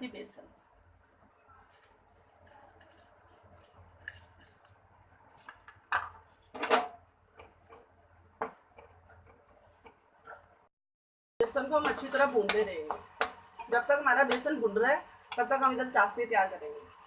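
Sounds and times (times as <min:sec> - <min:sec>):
spatula scraping and clinking pan: 0:11.5 - 0:14.4.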